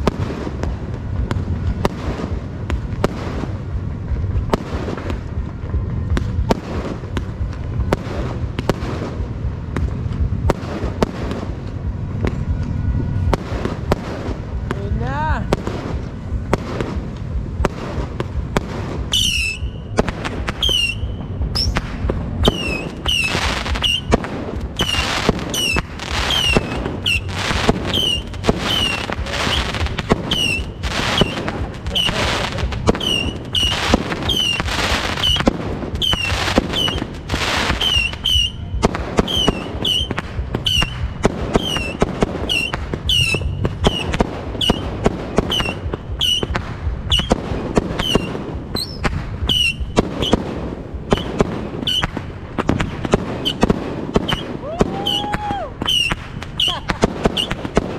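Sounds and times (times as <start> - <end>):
deep booms: 0.0 - 57.9
fireworks and firecrackers banging: 0.0 - 57.9
high falling whistle: 54.3 - 56.8.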